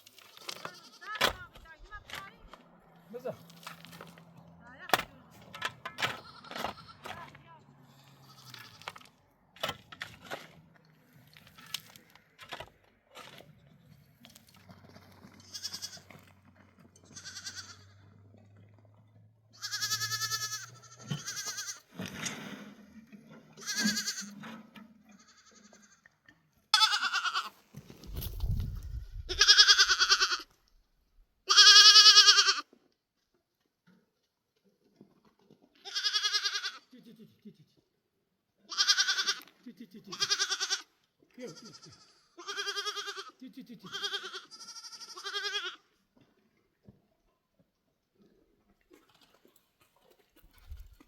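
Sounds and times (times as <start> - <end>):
sheep and goats bleating: 0.1 - 2.3, 5.9 - 9.2, 15.2 - 18.3, 19.5 - 22.0, 23.5 - 24.4, 25.1 - 27.6, 29.3 - 30.6, 31.4 - 32.7, 35.8 - 37.0, 38.6 - 46.0
brief low rumble: 28.1 - 29.4.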